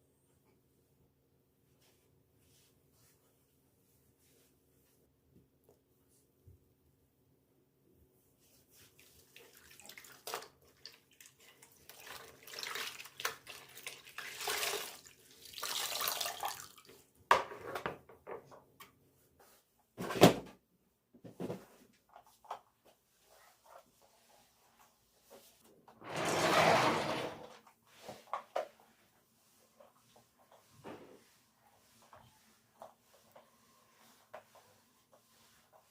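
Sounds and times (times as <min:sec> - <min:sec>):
water splashing and sloshing: 0:08.8 - 0:16.9.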